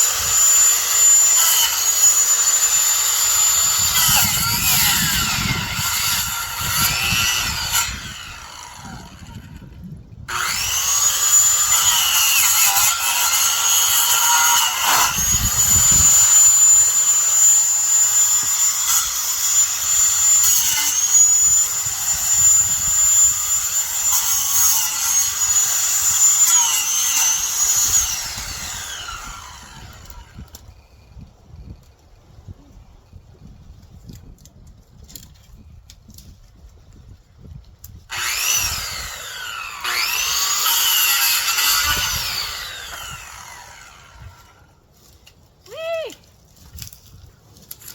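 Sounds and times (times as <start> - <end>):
electric saw whining: 0.0 - 30.6, 38.1 - 44.7.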